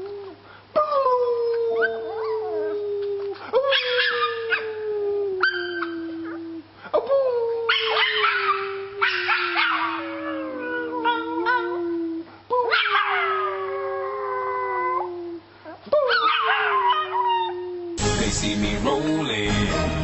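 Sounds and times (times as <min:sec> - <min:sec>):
dog howling: 0:00.8 - 0:06.6, 0:07.7 - 0:15.4.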